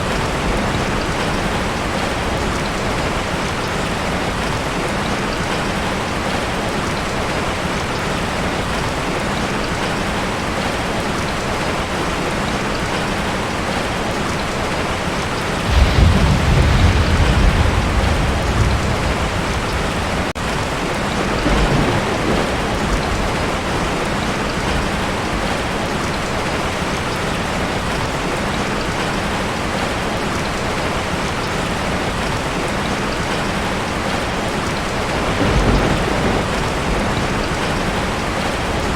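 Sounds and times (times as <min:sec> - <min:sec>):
heavy rain on a tin roof: 0:00.0 - 0:38.9
thunder rumbling: 0:15.3 - 0:25.9, 0:34.8 - 0:38.9.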